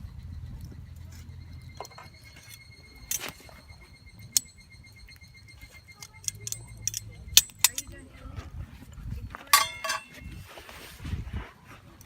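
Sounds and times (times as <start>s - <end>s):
light clinks: 0.8s - 8.2s, 9.3s - 10.5s.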